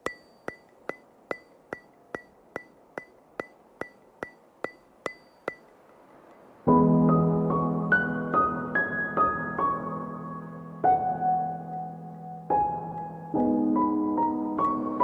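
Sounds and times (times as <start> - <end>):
mechanical ticking: 0.0 - 6.4.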